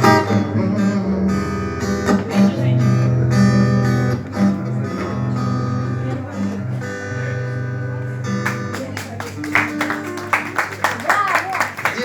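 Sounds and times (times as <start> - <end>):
sustained low notes: 0.0 - 8.7
acoustic guitar strumming: 0.0 - 10.6.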